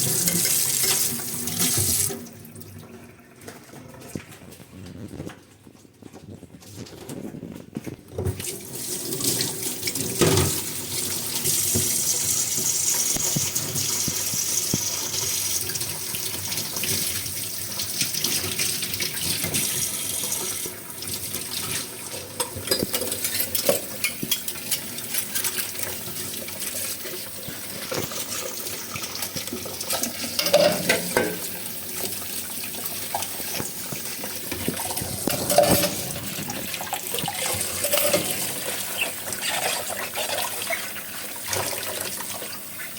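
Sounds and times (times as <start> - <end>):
tap water running into sink: 0.0 - 4.5, 8.2 - 42.9
dishes clinking: 30.0 - 31.5, 34.5 - 39.8.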